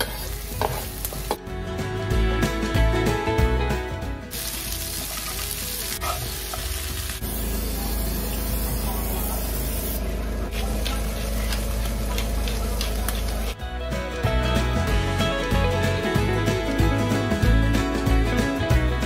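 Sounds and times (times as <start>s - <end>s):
bacon and beans sizzling in a pan: 0.0s - 1.4s, 4.3s - 8.1s.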